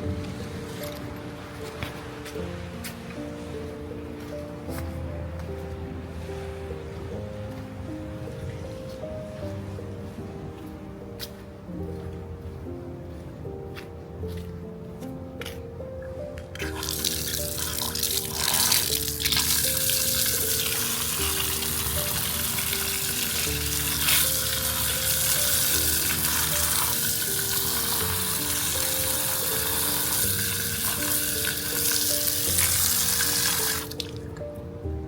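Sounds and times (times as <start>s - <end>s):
background music: 0.0s - 35.0s
running water hiss: 16.5s - 34.2s.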